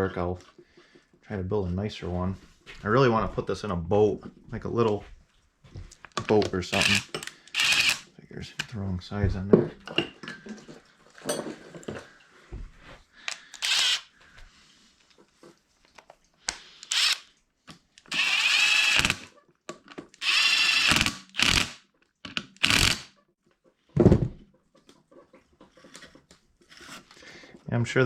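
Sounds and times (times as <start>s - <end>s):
power drill spurts: 6.7s - 8.0s, 13.4s - 14.1s, 16.8s - 17.3s, 18.0s - 19.3s, 20.2s - 21.8s, 22.6s - 23.1s.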